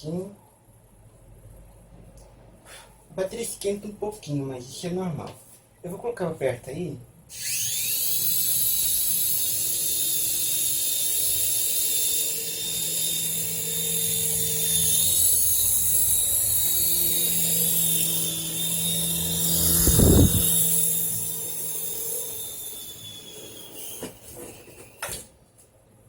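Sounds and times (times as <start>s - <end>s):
toy helicopter motors whining: 7.3s - 25.2s
low rush: 18.6s - 21.9s.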